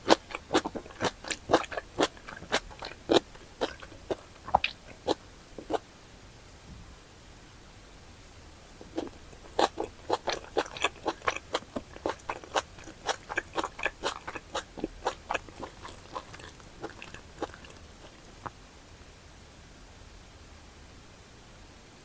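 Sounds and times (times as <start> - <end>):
chewing food with wet smacking: 0.0 - 5.8, 8.7 - 18.6.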